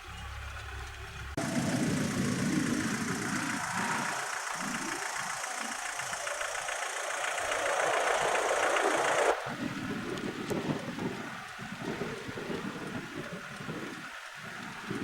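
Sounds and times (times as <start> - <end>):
aircraft engine roar: 0.0 - 15.0.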